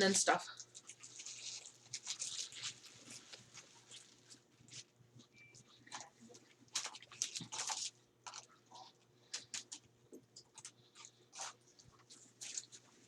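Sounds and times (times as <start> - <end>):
chewing and biting food: 5.7 - 13.0.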